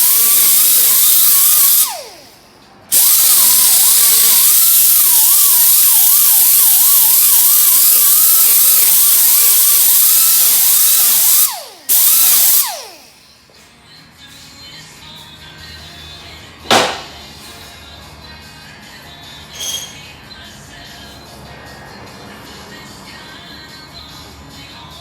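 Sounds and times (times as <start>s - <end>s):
power tool whining: 0.0s - 13.5s.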